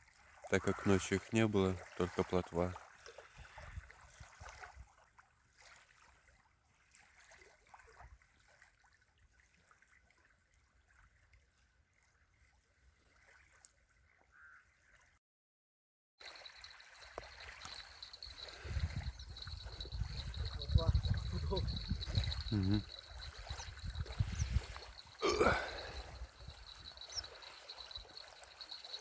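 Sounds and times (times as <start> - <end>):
lake water lapping and trickling: 0.0 - 15.2, 16.2 - 29.0
small ticks: 16.2 - 25.2, 26.0 - 29.0.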